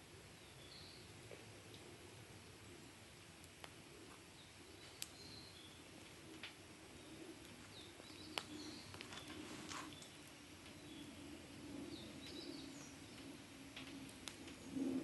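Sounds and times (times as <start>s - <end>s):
wood fire crackling: 0.0s - 15.0s
small birds chirping: 0.2s - 3.1s, 3.7s - 14.9s
sharp pops of fire: 7.4s - 10.2s, 13.2s - 14.6s.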